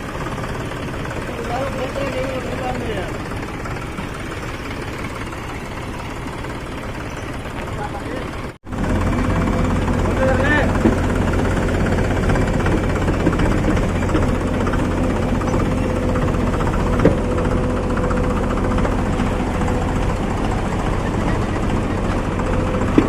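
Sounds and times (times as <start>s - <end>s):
diesel tractor engine running: 0.0s - 23.0s.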